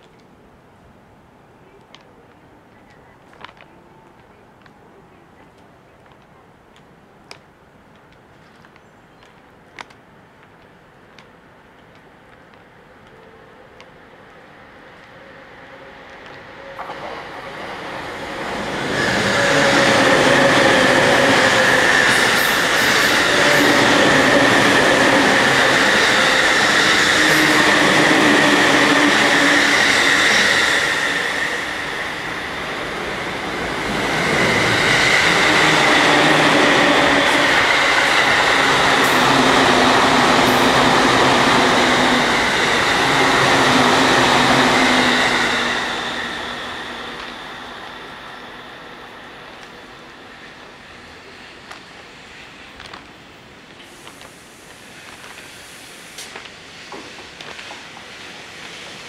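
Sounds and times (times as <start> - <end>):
trains rushing past: 10.7 - 59.0.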